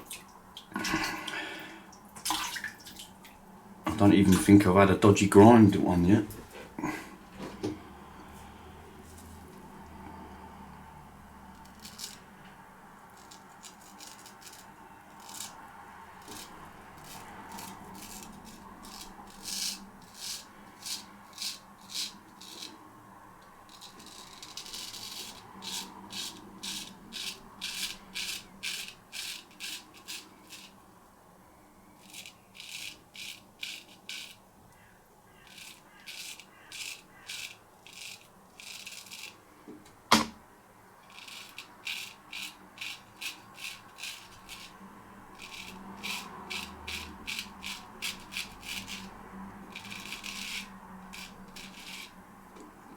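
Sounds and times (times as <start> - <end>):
razor scraping stubble: 13.1 - 22.8, 23.7 - 30.8, 32.0 - 34.4, 35.4 - 39.4, 41.0 - 52.2.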